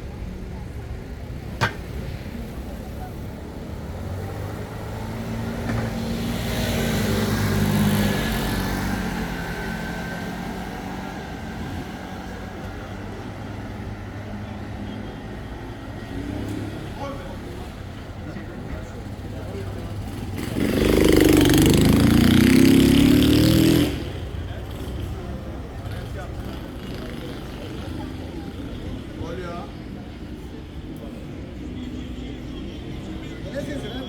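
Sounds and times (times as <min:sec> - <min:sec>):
street noise: 0:00.0 - 0:34.0
vehicle passing by: 0:19.3 - 0:29.4.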